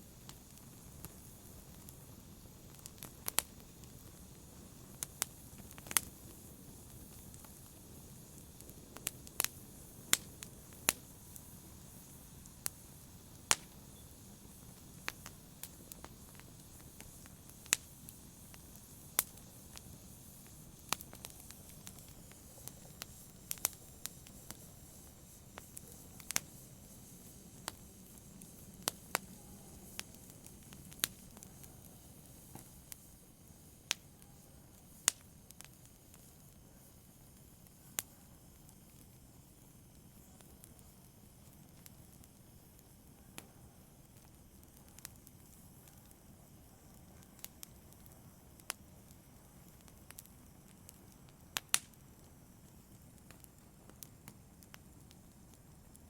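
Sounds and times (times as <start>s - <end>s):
sharp pops and snaps of fire: 0.0s - 56.0s
wood fire crackling: 0.0s - 56.0s.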